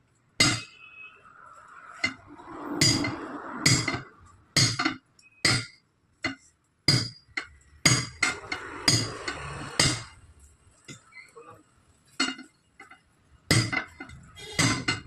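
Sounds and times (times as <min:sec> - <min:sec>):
hammer clanking on steel: 0:00.4 - 0:00.7, 0:04.6 - 0:10.1, 0:13.5 - 0:15.0.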